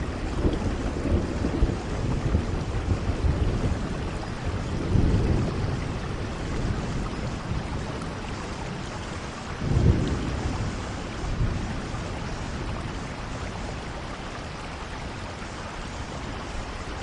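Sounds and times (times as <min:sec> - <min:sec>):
steady rainfall: 0:00.0 - 0:17.0.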